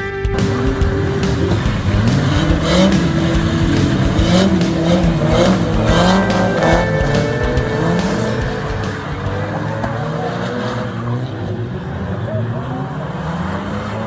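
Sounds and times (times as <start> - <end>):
tyres squealing: 0.0 - 11.2
car engines revving: 0.0 - 14.0.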